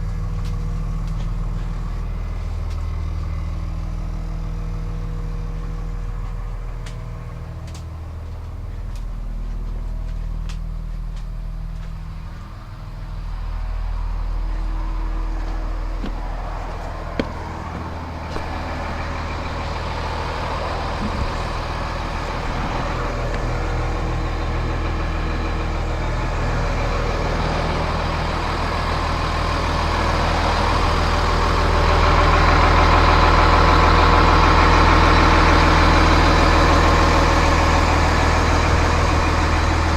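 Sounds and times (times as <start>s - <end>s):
diesel bus engine idling: 0.0s - 39.9s.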